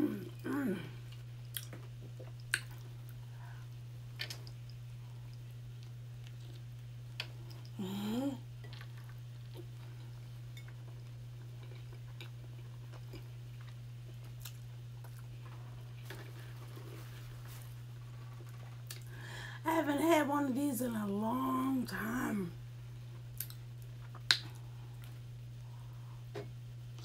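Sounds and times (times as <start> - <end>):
person humming mmm: 0.0 - 1.0, 7.7 - 8.5
steady low hum: 0.0 - 27.0
person chewing food: 1.0 - 19.1, 23.1 - 25.3
wet mouth clicks: 24.2 - 24.6.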